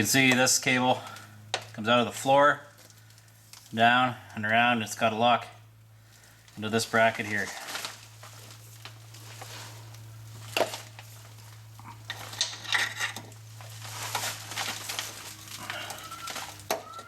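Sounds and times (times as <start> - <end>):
steady low hum: 0.0 - 17.0
metal cable clinking and rattling: 10.4 - 17.0.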